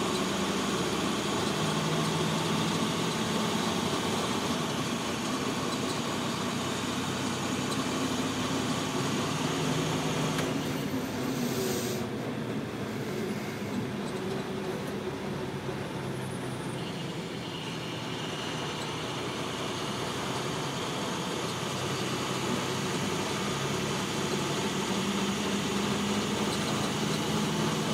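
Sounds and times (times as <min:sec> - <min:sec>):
car engine running: 0:00.0 - 0:27.9
road and cabin noise: 0:00.0 - 0:27.9
brief high hiss: 0:11.2 - 0:12.1.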